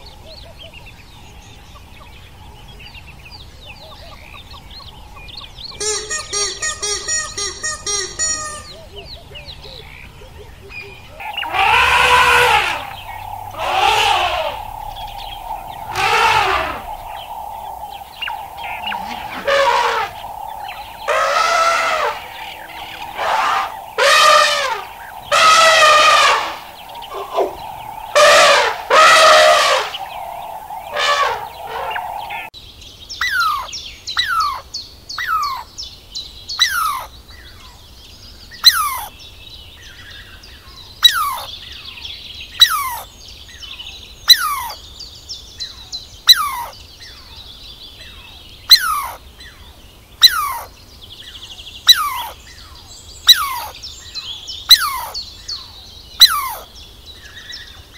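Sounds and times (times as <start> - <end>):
animal calls rising and falling: 5.8 - 8.8, 11.2 - 32.5
steady high tone: 5.8 - 8.8, 12.4 - 32.5
downward sweeping chirps: 5.8 - 9.0, 11.2 - 32.5.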